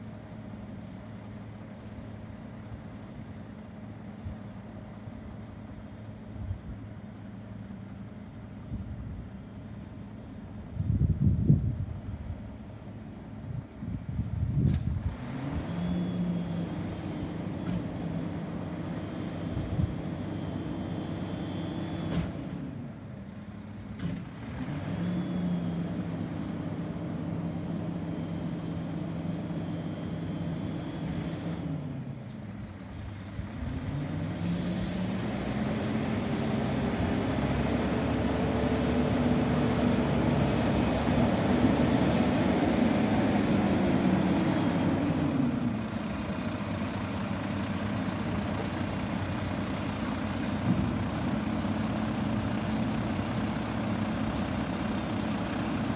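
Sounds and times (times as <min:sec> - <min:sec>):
garbage truck engine revving: 0:33.5 - 0:55.9.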